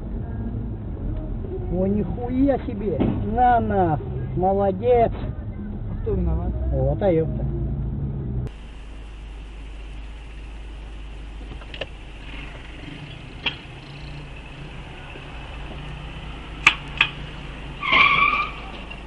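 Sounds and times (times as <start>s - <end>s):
car road hum: 0.0s - 19.0s.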